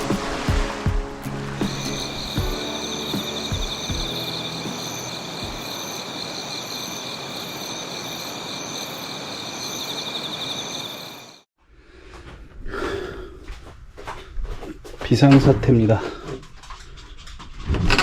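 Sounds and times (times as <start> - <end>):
insects trilling and buzzing: 1.3 - 11.5.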